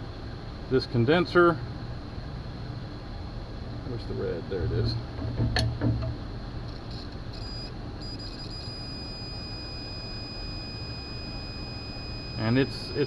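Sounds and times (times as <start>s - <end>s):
probe clicks: 6.7s - 13.0s
multimeter continuity beeping: 6.8s - 13.0s.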